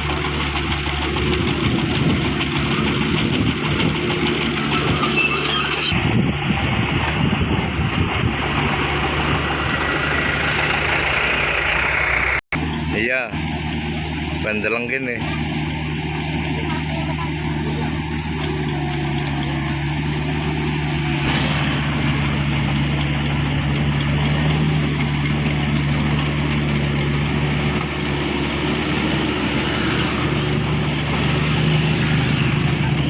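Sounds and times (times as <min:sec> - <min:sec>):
engine running steadily: 0:00.0 - 0:33.0
broad rushing noise: 0:20.7 - 0:23.8, 0:27.5 - 0:33.0.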